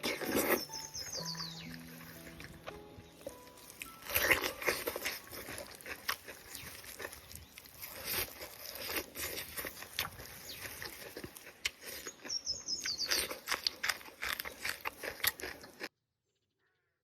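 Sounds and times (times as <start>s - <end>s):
chewing and lip-smacking: 0.0s - 15.9s
bird chirping: 0.4s - 8.4s, 10.2s - 11.2s, 11.8s - 13.8s.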